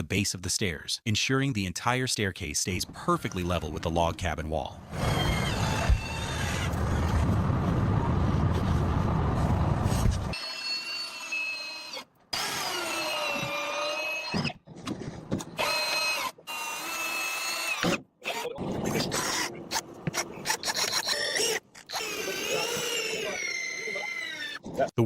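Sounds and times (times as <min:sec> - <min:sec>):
power drill whining: 0:04.9 - 0:07.2, 0:10.3 - 0:14.5.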